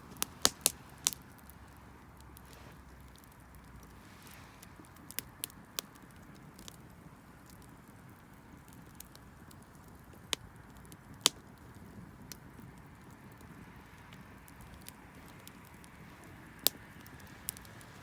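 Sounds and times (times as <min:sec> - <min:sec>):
faint hiss: 0:00.0 - 0:05.4
wood fire crackling and popping: 0:00.0 - 0:18.0.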